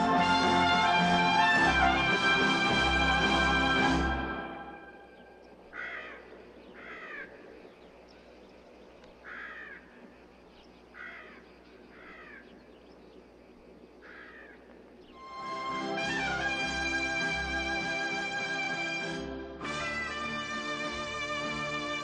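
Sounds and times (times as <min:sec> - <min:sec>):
faint steady background noise: 0:00.0 - 0:22.0
bird cawing: 0:05.0 - 0:15.2.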